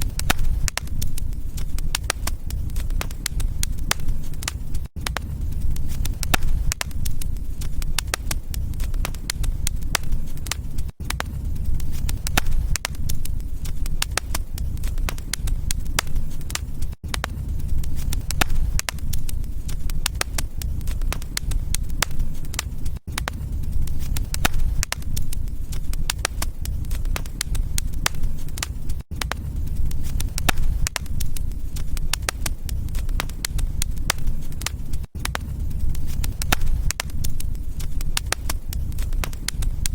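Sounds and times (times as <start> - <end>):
low fire rumble: 0.0 - 39.9
wood fire crackling and popping: 0.0 - 39.9.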